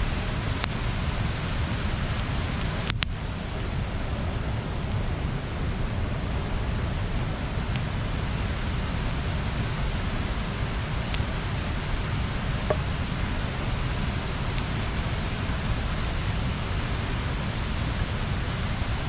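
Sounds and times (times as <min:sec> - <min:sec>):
rush of bonfire flames: 0:00.0 - 0:19.0
burning wood popping: 0:00.3 - 0:01.2, 0:07.6 - 0:18.8.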